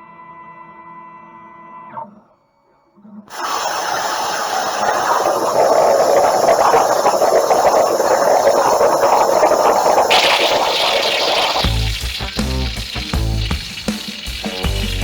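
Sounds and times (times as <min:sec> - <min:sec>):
plasma cutter arc hissing: 0:03.3 - 0:15.0.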